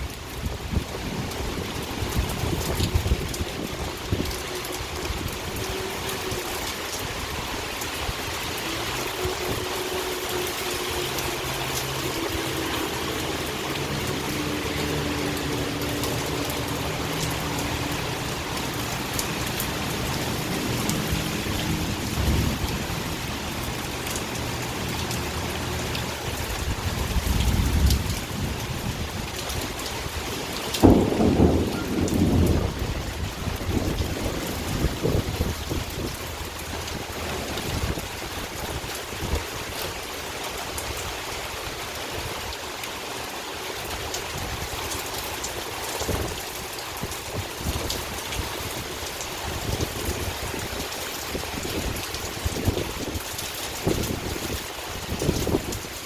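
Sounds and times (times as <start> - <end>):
heavy rain falling: 0.0 - 56.0
low thunder rumbles: 26.4 - 38.0.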